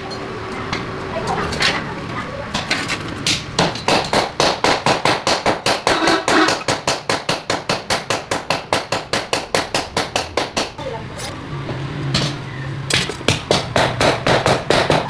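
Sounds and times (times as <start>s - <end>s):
rapid knocks: 3.2s - 10.8s, 12.2s - 15.0s.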